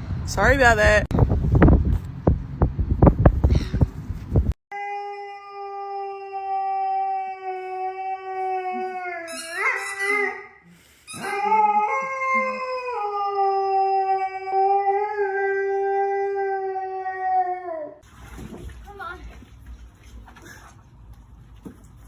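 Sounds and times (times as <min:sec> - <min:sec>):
dog howling: 0:04.7 - 0:10.5, 0:11.2 - 0:18.0.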